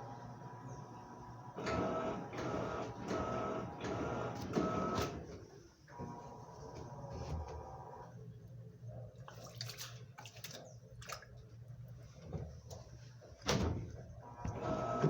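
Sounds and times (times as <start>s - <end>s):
water sloshing and splashing: 8.9s - 14.5s
low motor hum: 10.6s - 15.0s.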